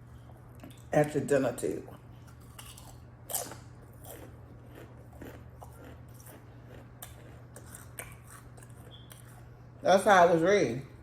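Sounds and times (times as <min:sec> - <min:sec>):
chewing sandwich: 0:01.9 - 0:09.6.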